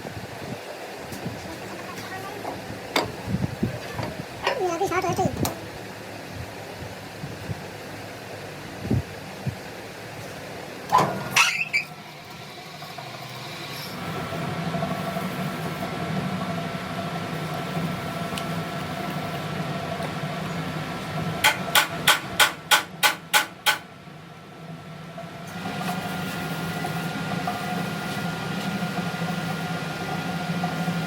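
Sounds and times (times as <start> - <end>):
hammer striking steel: 21.4 - 23.9.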